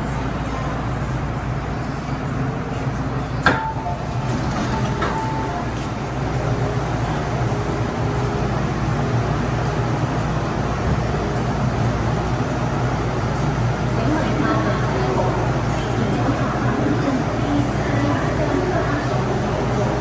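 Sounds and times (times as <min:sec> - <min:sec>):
train wheels and motors rumbling: 0:00.0 - 0:20.0
sharp train clunk: 0:03.4 - 0:05.8.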